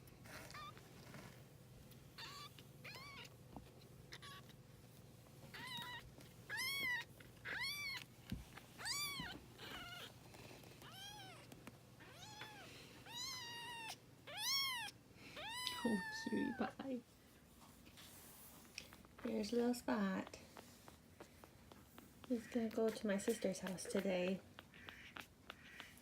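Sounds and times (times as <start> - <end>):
kitten meowing: 2.2 - 3.3, 4.1 - 4.5, 5.5 - 8.1, 8.8 - 10.1, 10.8 - 16.6.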